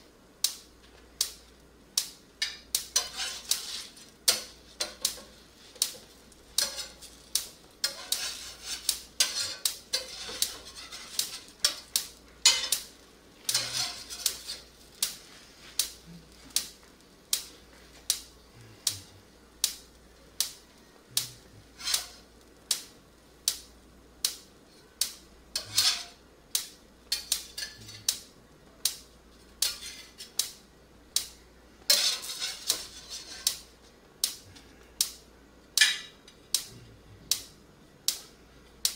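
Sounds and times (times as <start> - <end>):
metal utensils clattering on a pan: 2.4 - 12.9, 13.5 - 14.7, 21.8 - 22.2, 25.6 - 26.2, 27.1 - 28.1, 29.6 - 30.4, 31.9 - 33.6, 35.8 - 36.3.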